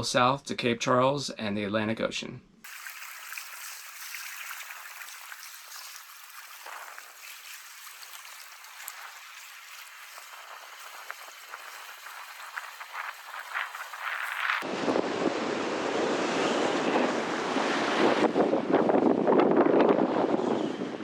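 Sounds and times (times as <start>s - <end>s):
small ticks and crackles: 2.7s - 14.6s
watery hiss: 2.7s - 14.6s.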